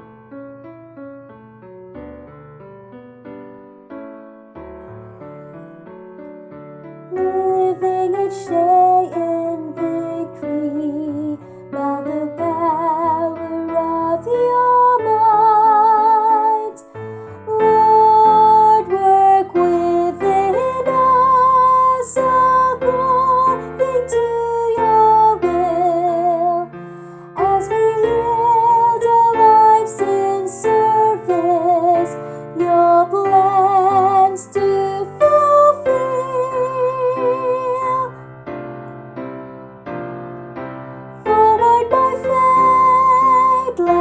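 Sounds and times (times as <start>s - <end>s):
piano accompaniment: 0.0s - 44.0s
soprano woman singing: 7.1s - 38.4s, 41.1s - 44.0s.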